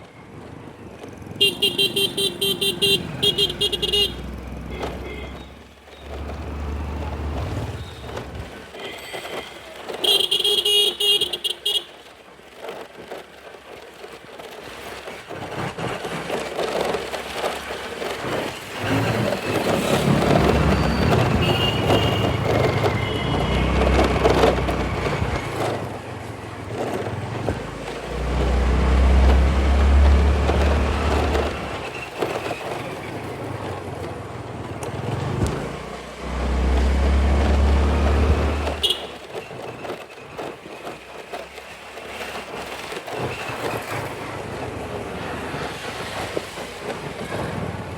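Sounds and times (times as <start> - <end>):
traffic and road noise: 0.0 - 47.9
vehicle horn honking: 1.4 - 5.6, 8.8 - 12.0, 20.0 - 24.7, 38.0 - 39.2.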